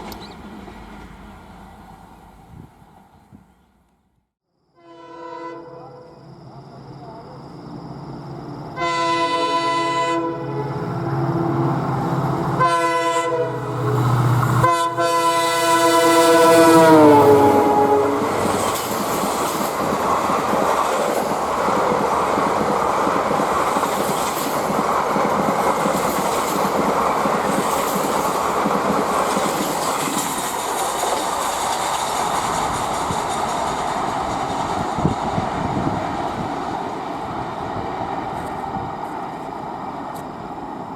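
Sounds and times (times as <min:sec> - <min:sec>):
train rushing and clattering past: 0:00.0 - 0:03.5, 0:06.9 - 0:40.9
train horn blasts: 0:04.8 - 0:06.2, 0:08.8 - 0:11.8, 0:12.4 - 0:18.8.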